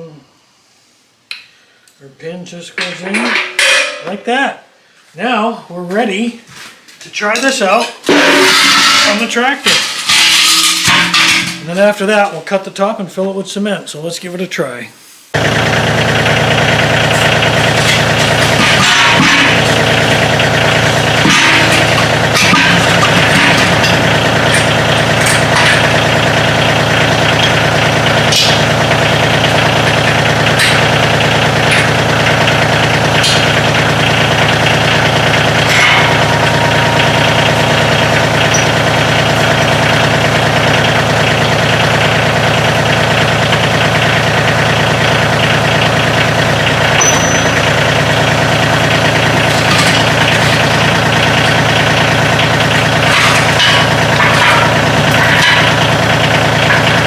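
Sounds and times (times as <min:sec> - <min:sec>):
tractor diesel engine running: 0:08.1 - 0:09.2, 0:09.8 - 0:12.2, 0:15.4 - 0:57.0.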